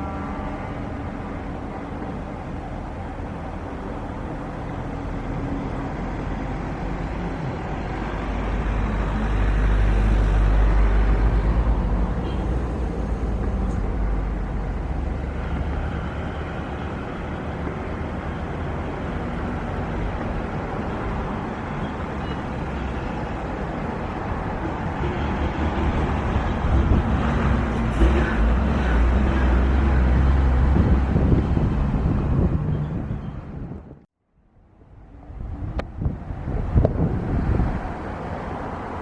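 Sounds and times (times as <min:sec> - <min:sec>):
wind buffeting microphone: 0:23.5 - 0:34.1, 0:34.8 - 0:39.0.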